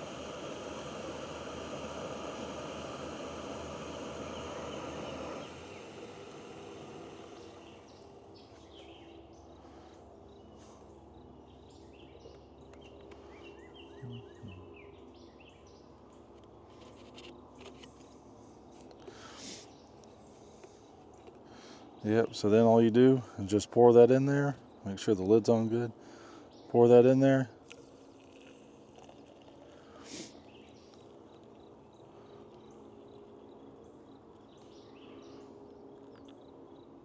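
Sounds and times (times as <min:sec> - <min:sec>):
gas burner hissing: 0:00.0 - 0:08.4, 0:19.1 - 0:19.8, 0:29.0 - 0:31.2
birds chirping: 0:03.4 - 0:17.3, 0:29.0 - 0:37.0.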